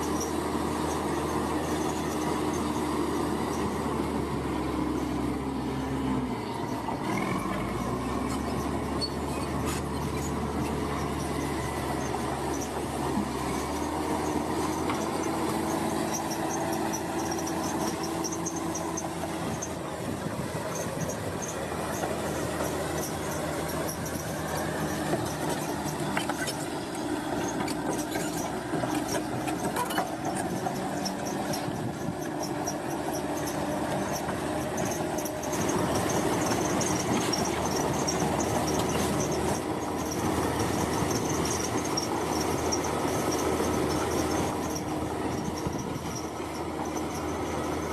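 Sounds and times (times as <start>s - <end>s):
machinery engine drone: 0.0s - 47.9s
high metallic squeal: 6.5s - 19.9s.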